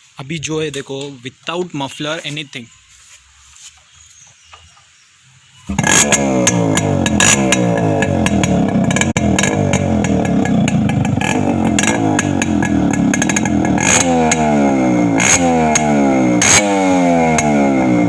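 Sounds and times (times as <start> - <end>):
exhaust cracks: 5.7 - 18.0
two-stroke engine revving: 5.7 - 18.0.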